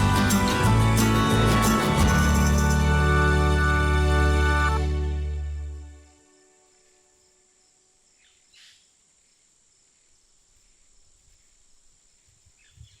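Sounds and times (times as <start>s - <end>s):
bird chirps: 1.6s - 2.9s, 8.2s - 9.0s, 12.5s - 13.0s.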